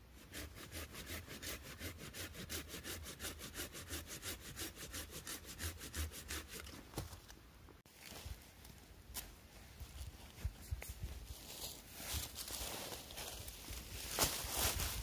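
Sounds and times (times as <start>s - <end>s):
hand saw cutting wood: 0.2s - 6.9s.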